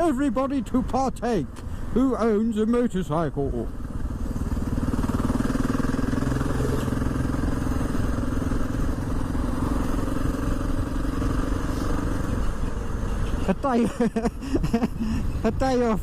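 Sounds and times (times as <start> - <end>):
motorcycle engine running: 3.6 - 13.8.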